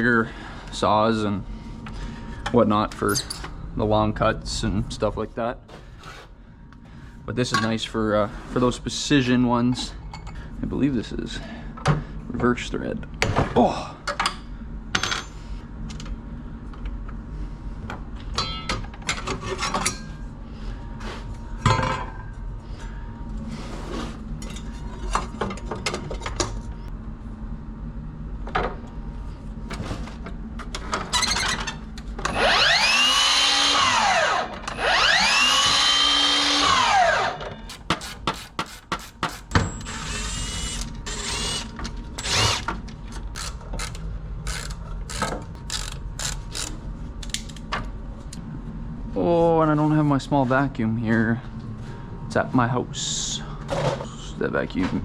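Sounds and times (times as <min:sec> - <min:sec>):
tools and metal parts clinking: 0:03.0 - 0:03.5, 0:18.3 - 0:20.1
power tool motor revving: 0:32.3 - 0:37.4.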